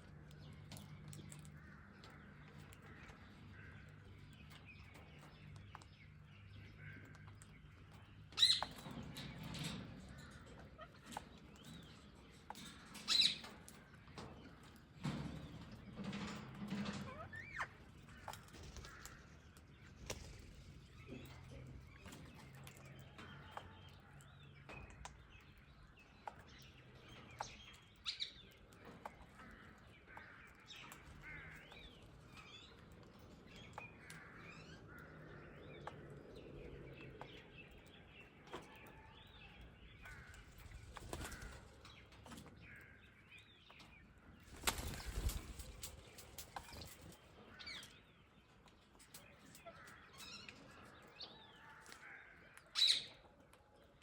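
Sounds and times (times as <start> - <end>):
sparrows and parrots chirping: 0.0 - 54.0
wings flapping: 44.4 - 47.2.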